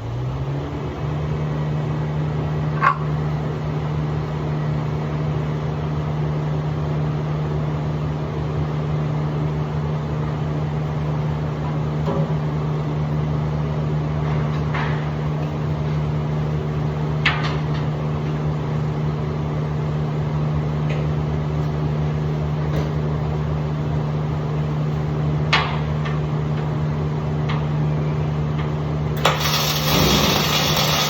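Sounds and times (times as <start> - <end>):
machine humming: 29.2 - 31.0.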